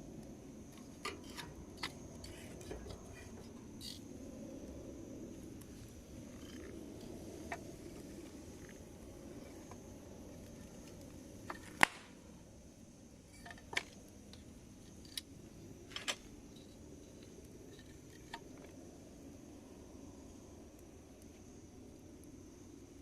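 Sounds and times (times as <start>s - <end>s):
campfire crackling: 0.0s - 23.0s
sharp pops from fire: 10.4s - 12.2s.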